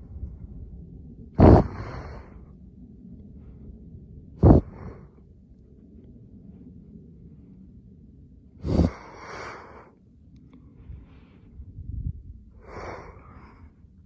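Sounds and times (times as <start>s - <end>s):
steady low rumble: 0.0s - 14.0s
sharp exhale: 1.4s - 2.4s, 4.4s - 5.1s, 8.6s - 9.9s, 12.6s - 13.7s
person breathing: 1.4s - 2.5s, 4.4s - 5.2s, 8.6s - 11.9s, 12.6s - 14.0s.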